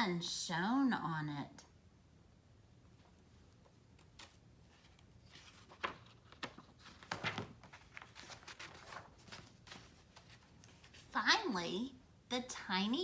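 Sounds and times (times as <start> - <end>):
book pages rustling and turning: 3.0 - 11.2.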